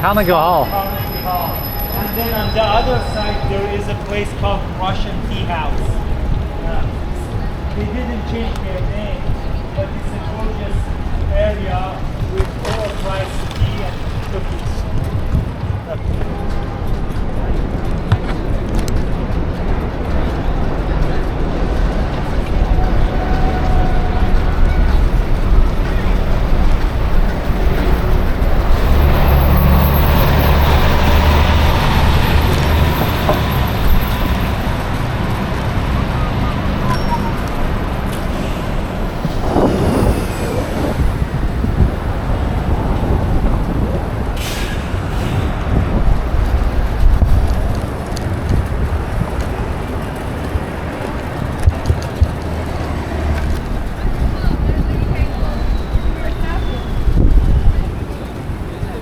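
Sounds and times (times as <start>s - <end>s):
large vehicle engine rumble: 0.0s - 59.0s
street traffic noise: 0.0s - 59.0s.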